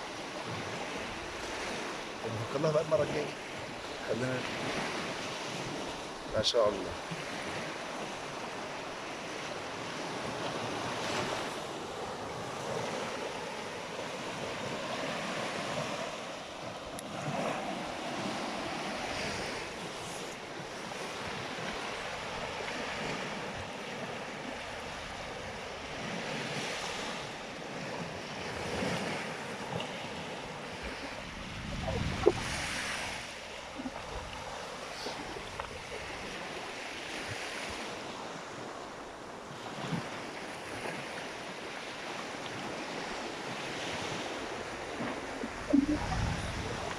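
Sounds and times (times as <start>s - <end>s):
sea waves washing onto shore: 0.0s - 46.9s
wind buffeting microphone: 30.8s - 34.6s, 44.0s - 46.9s.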